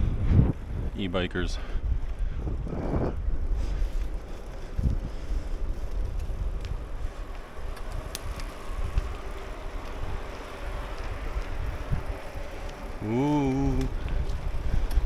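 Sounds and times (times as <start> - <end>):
wind buffeting microphone: 0.0 - 15.0
faint clicks: 13.7 - 15.0.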